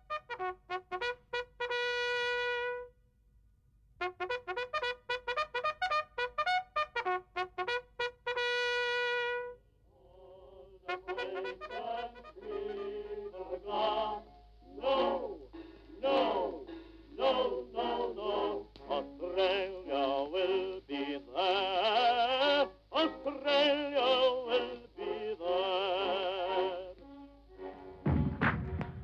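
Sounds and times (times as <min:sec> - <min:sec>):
operatic singing voice: 0:09.9 - 0:27.0
low thud: 0:28.0 - 0:29.0.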